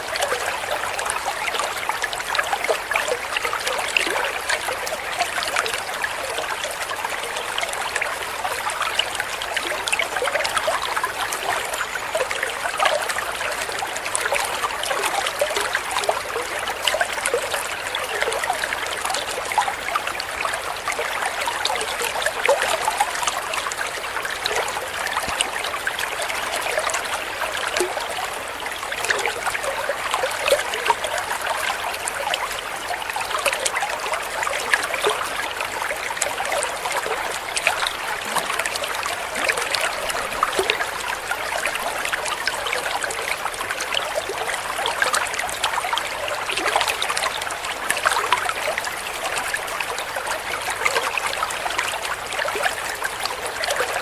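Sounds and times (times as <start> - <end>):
babbling water stream: 0.0 - 54.0.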